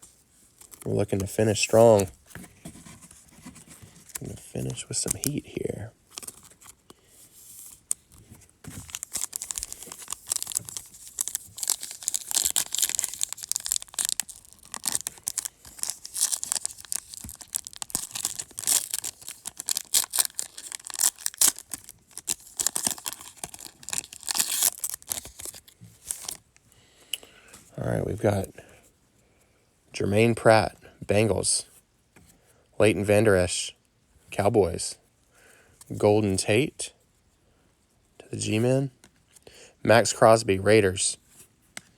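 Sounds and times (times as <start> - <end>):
plastic wrapping tearing and crinkling: 8.7 - 26.4.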